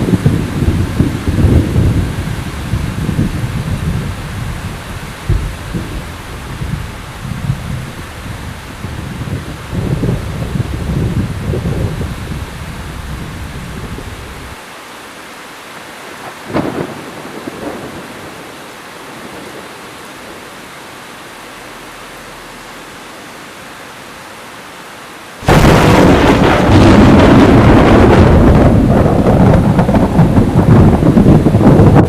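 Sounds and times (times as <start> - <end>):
thunder rumbling and cracking: 0.0 - 14.6, 16.2 - 20.5, 25.4 - 32.0
heavy rain falling: 0.0 - 32.0.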